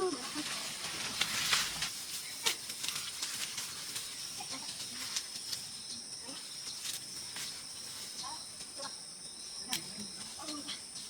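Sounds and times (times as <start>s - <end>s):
insects trilling: 0.0s - 11.0s
light clicks and rustles: 0.4s - 5.9s
lower insect trill: 2.0s - 11.0s.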